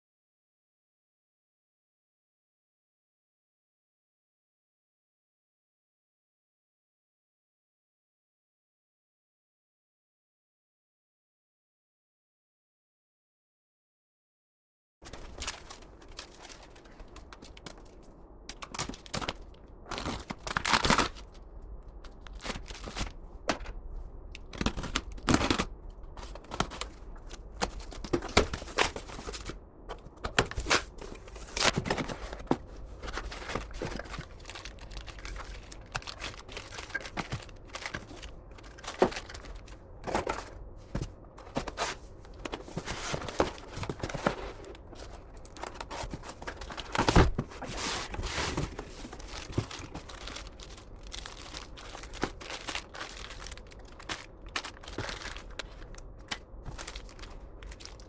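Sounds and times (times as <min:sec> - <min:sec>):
crinkling: 0:15.0 - 0:58.0.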